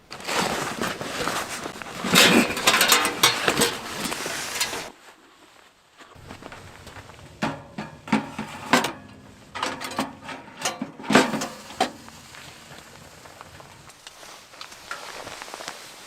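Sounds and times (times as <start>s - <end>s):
camp gear knocking and clinking: 1.3s - 4.9s, 6.2s - 13.9s.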